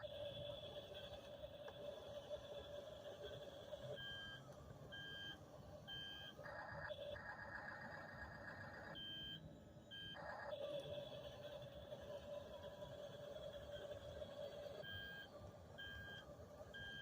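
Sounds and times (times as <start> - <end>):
faint hum: 0.0 - 17.0
toy tractor reversing beeper: 1.9 - 6.8, 8.7 - 16.2, 16.8 - 17.0.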